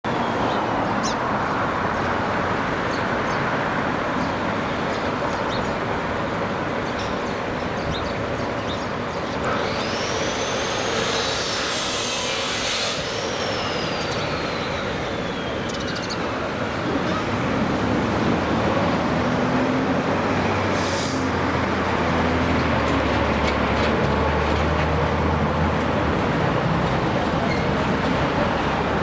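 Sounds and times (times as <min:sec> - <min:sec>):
city street traffic: 0:00.0 - 0:29.0
high whine: 0:09.2 - 0:17.3.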